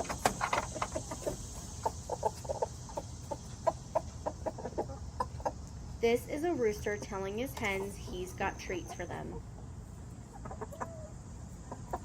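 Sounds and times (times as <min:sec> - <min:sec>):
rooster clucking: 0:00.0 - 0:05.6, 0:10.2 - 0:12.0.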